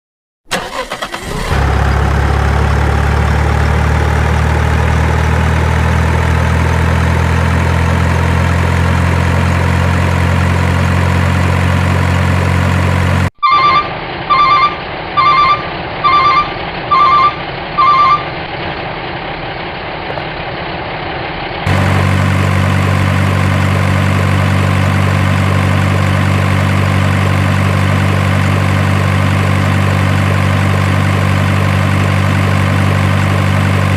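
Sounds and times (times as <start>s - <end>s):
truck engine idling: 0.5s - 33.9s
electronic beeps: 13.4s - 18.4s.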